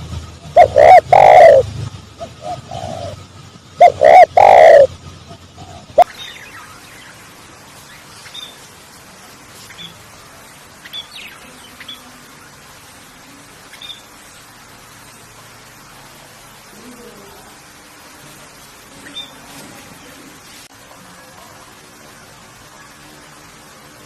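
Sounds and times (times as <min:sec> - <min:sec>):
steady faint hiss: 0:00.0 - 0:24.0
loud arching bird call: 0:00.5 - 0:03.2, 0:03.8 - 0:07.1
faint high bird chirps: 0:05.6 - 0:08.7, 0:09.6 - 0:10.0, 0:10.8 - 0:12.7, 0:13.7 - 0:14.1, 0:19.0 - 0:19.5.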